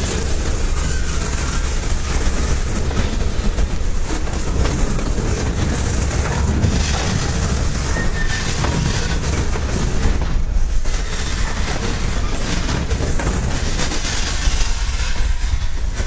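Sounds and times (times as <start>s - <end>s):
steel wheels rumbling on rails: 0.0s - 16.0s
wheels clacking over rail joints: 0.0s - 16.0s.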